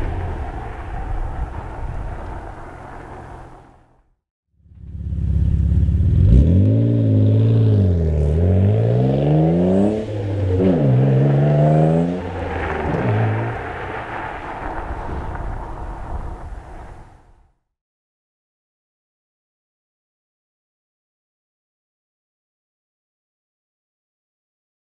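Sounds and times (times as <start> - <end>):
car engine idling and revving: 0.0 - 4.0, 4.6 - 17.2.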